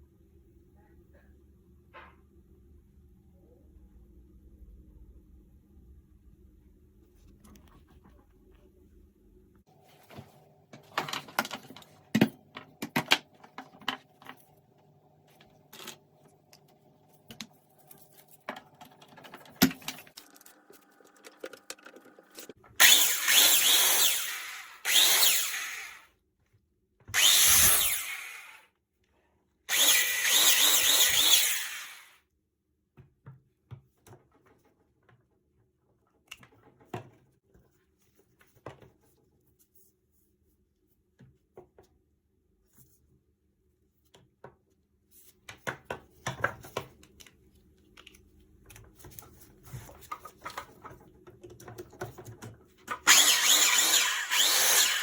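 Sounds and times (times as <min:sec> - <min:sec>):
handheld power tool running: 0:22.8 - 0:26.1, 0:27.2 - 0:28.7, 0:29.7 - 0:32.2, 0:53.0 - 0:55.0
small clicks and handling knocks: 0:45.4 - 0:53.0.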